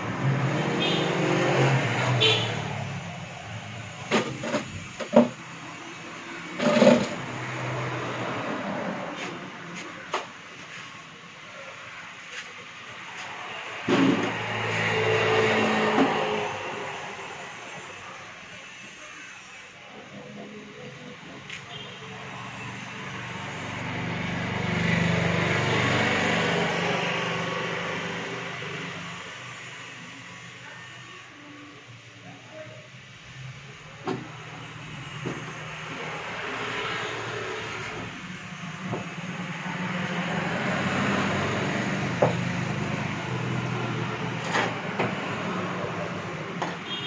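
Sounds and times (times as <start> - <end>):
motor vehicle passing by: 0.0 - 4.9, 6.4 - 9.5, 13.2 - 17.0, 22.3 - 29.2, 35.5 - 46.3.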